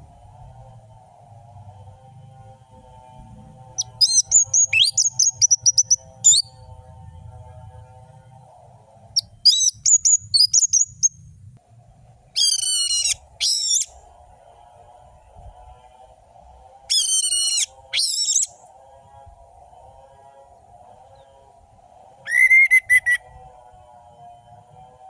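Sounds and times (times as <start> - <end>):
faint steady drone: 0.0 - 25.0
thrush singing whistled notes: 3.7 - 6.7, 9.2 - 11.2, 12.4 - 14.1, 16.9 - 18.7, 22.2 - 23.5
harsh buzzy bird notes: 22.3 - 23.3.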